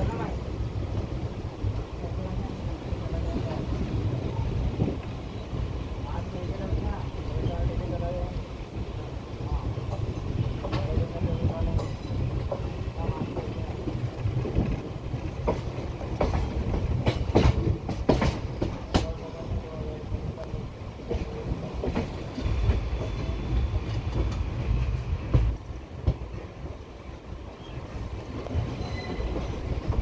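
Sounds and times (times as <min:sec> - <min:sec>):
train wheels rumbling on rail: 0:00.0 - 0:30.0
clacks over rail joints: 0:09.8 - 0:19.3, 0:20.4 - 0:26.8.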